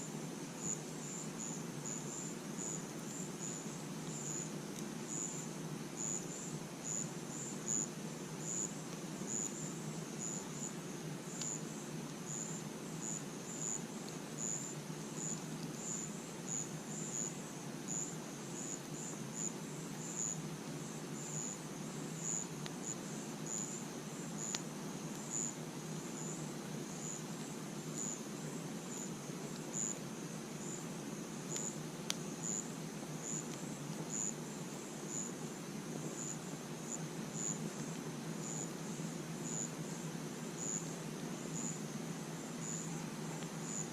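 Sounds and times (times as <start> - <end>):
crickets chirping: 0.0 - 43.9
low hiss: 0.0 - 43.9
campfire crackling pops: 15.3 - 16.1, 24.4 - 25.3, 31.4 - 34.8.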